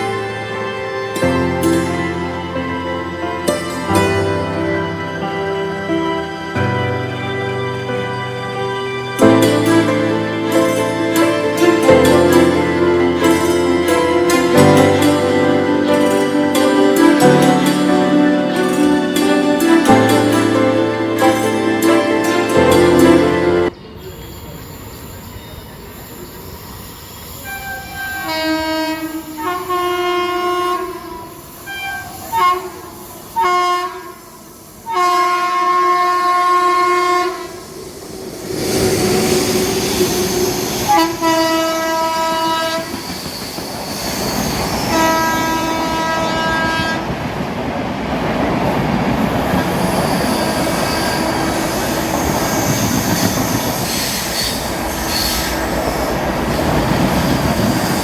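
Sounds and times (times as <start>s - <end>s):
train horn blasts: 27.4s - 37.8s, 38.6s - 43.2s, 44.0s - 47.3s
train wheels rumbling on rails: 34.0s - 58.0s.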